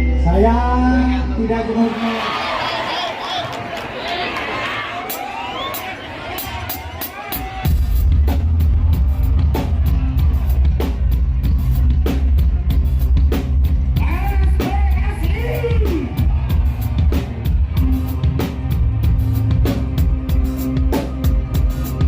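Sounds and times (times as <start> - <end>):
loud band music: 5.0 - 22.0
drum kit beat: 5.1 - 22.0
heavy bass: 7.2 - 22.0.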